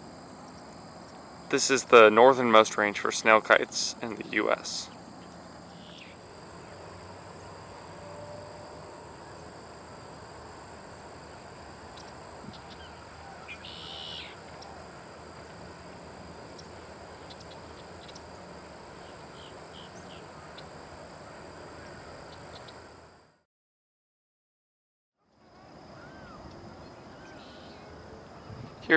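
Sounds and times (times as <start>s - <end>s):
steady hiss: 0.0s - 23.0s
faint bird chirps: 5.2s - 6.2s, 11.9s - 14.8s, 25.6s - 28.9s
harsh bird call: 12.6s - 14.4s.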